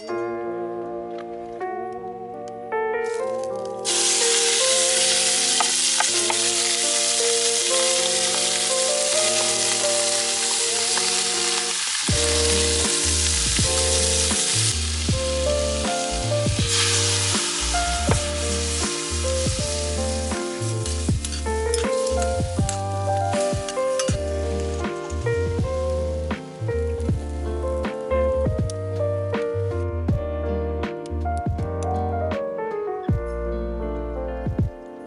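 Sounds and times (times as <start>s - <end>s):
background music: 0.0s - 35.0s
food sizzling in a pan: 3.8s - 27.0s.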